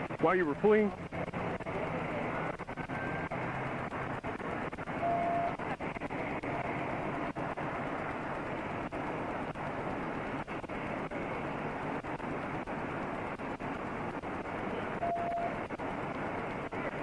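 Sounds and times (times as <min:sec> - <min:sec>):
traffic noise: 0:00.0 - 0:17.0
short beep: 0:05.0 - 0:05.6, 0:15.0 - 0:15.6.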